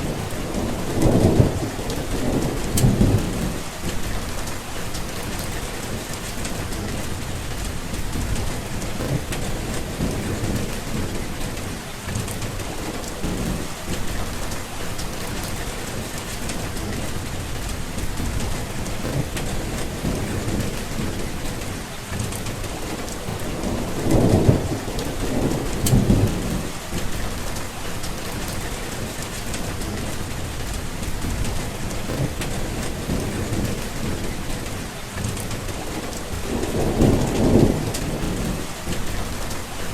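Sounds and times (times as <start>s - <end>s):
heavy rain: 0.0s - 39.9s
rolling thunder: 0.0s - 39.9s.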